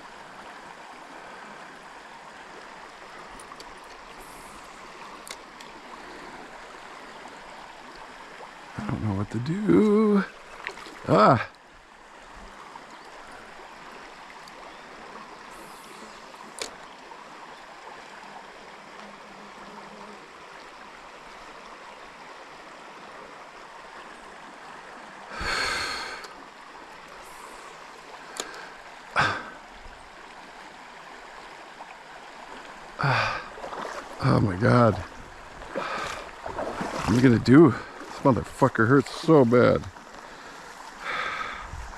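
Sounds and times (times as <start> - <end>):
stream water flowing: 0.0 - 41.9
faint clicks: 5.2 - 5.7, 28.3 - 28.7
person breathing out: 25.3 - 26.3, 28.4 - 29.6, 33.0 - 33.5, 35.8 - 36.2, 40.2 - 41.8.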